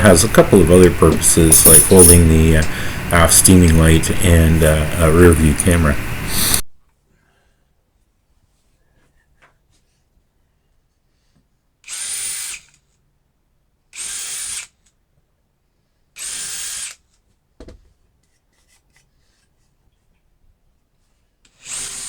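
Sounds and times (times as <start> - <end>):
power drill boring into wood: 11.9 - 12.8, 14.0 - 14.8, 16.2 - 17.0, 21.5 - 22.0.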